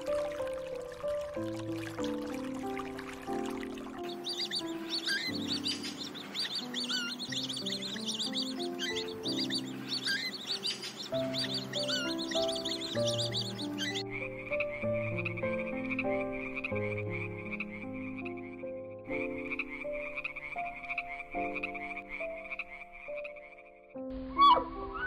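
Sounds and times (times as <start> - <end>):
slow background music: 0.0 - 25.0
frog croaking trills: 2.0 - 25.0
loud gliding call: 24.2 - 25.0.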